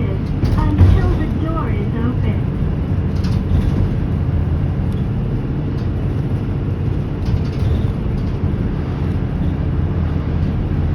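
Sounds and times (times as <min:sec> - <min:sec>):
bus engine rumble: 0:00.0 - 0:10.9
tyres on the road: 0:00.0 - 0:10.9.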